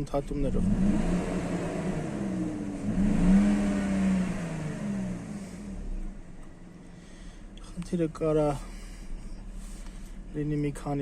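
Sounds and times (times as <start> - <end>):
misfiring car engine revving: 0.0 - 6.4.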